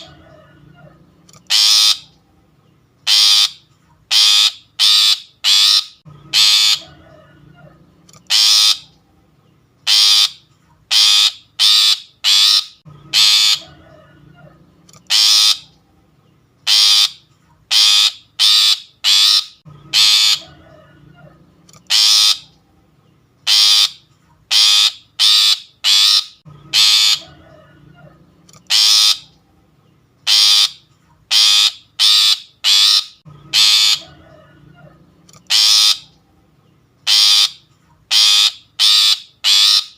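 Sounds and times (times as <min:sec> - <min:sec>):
bird giving harsh rasping calls: 0:00.0 - 0:02.1, 0:03.0 - 0:07.1, 0:08.2 - 0:08.9, 0:09.8 - 0:13.9, 0:15.0 - 0:15.7, 0:16.6 - 0:20.8, 0:21.8 - 0:22.6, 0:23.4 - 0:27.5, 0:28.6 - 0:29.4, 0:30.2 - 0:34.4, 0:35.4 - 0:36.2, 0:37.0 - 0:39.9.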